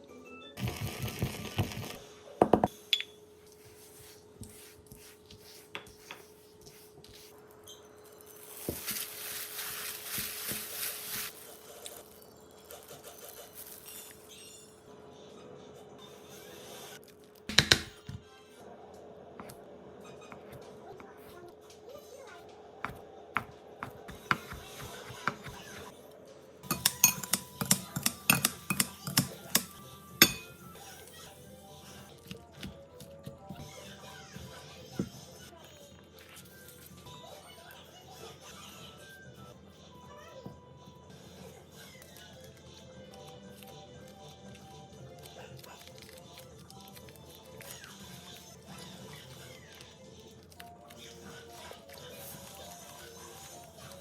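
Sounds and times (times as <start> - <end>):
utensils and dishes clinking: 26.6 - 30.8.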